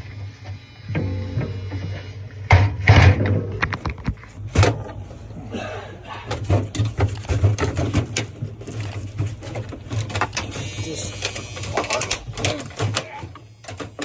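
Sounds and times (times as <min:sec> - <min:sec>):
steady low hum: 0:00.0 - 0:14.0
plastic and metal parts clicking: 0:06.3 - 0:14.0.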